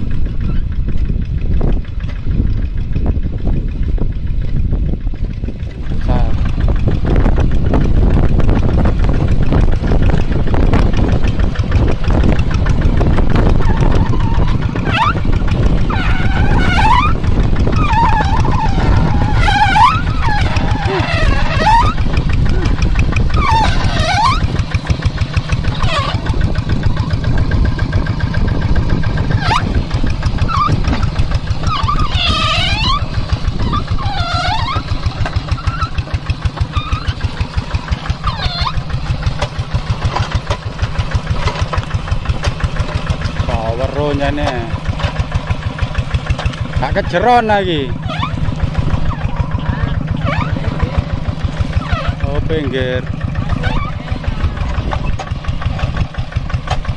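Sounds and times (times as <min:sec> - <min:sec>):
tractor diesel engine running: 0:00.0 - 0:56.9
short high gliding squeaks: 0:12.6 - 0:27.1, 0:28.9 - 0:45.9, 0:46.5 - 0:56.2.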